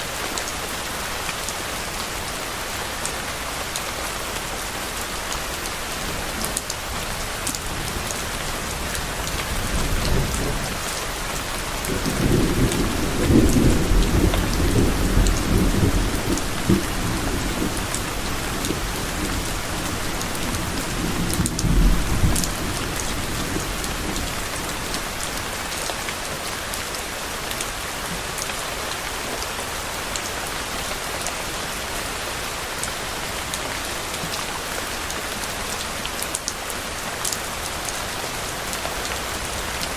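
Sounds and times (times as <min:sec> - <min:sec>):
steady rain falling: 0:00.0 - 0:39.9
low rumble of thunder: 0:11.8 - 0:25.0.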